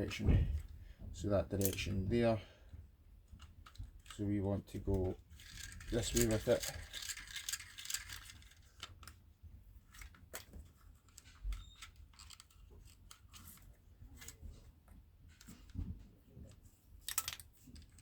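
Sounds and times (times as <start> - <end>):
starter cord clicks and rustles: 3.3 - 9.2, 9.8 - 14.6.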